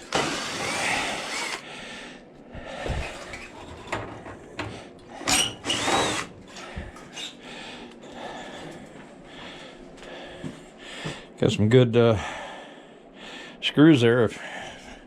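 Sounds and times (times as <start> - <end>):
power drill whining: 0.0 - 1.6, 5.2 - 6.3.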